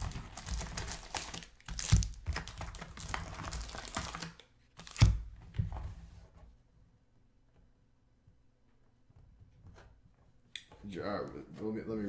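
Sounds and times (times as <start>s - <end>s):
trading cards rustling: 0.0s - 5.0s.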